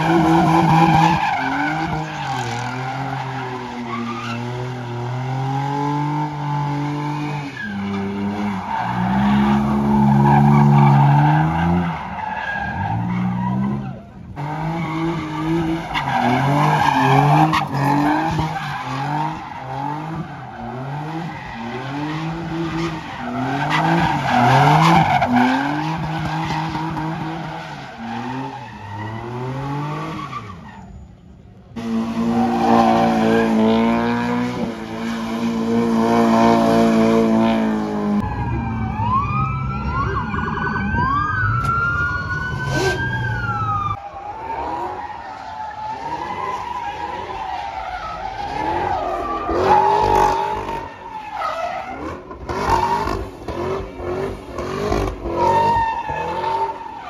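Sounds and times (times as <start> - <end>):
siren wailing: 0.0 - 6.4, 7.2 - 30.9, 32.3 - 54.3, 54.9 - 57.0
car engine revving: 31.7 - 38.2, 51.8 - 57.0.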